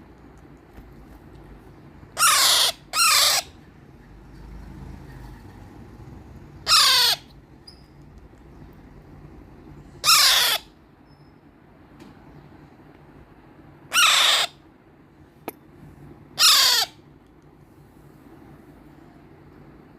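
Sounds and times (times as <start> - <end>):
parakeet chick harsh calls: 2.1 - 3.6, 6.6 - 7.4, 9.9 - 10.8, 13.9 - 14.7, 16.3 - 17.1.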